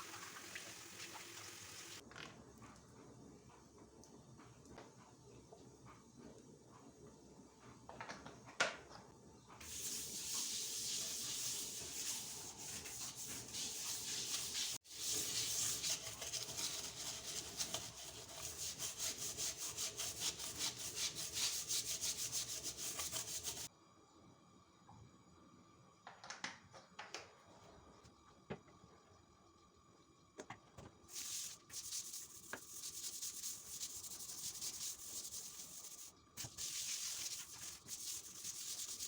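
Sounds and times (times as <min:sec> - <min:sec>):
scrubbing a kitchen surface: 0:09.6 - 0:23.7, 0:31.1 - 0:39.0.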